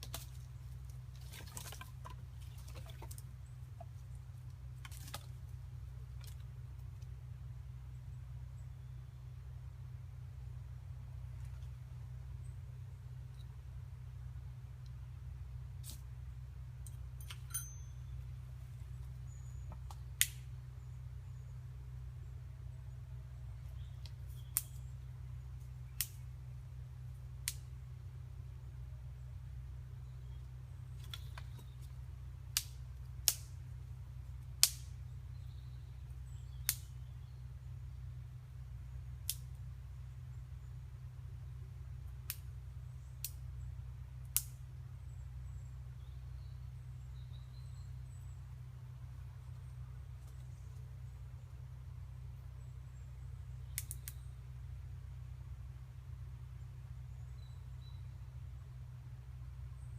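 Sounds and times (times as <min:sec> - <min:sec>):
steady low rumble: 0:00.0 - 0:59.9
sharp clicks: 0:53.8 - 0:54.2.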